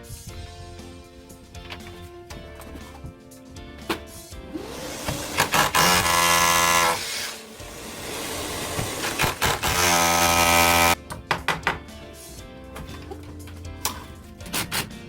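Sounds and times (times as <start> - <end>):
background music: 0.0 - 15.0
power tool motor running: 4.5 - 11.0.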